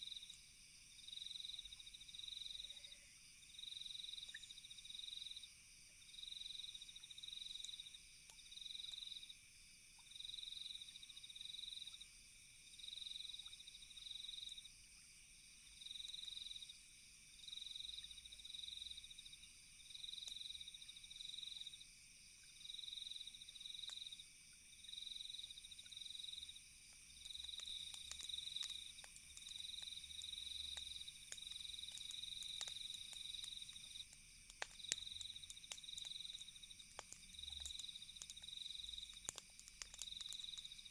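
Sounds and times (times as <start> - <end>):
crickets chirping trills: 0.0 - 40.9
campfire crackling clicks: 23.8 - 24.1, 26.8 - 40.9.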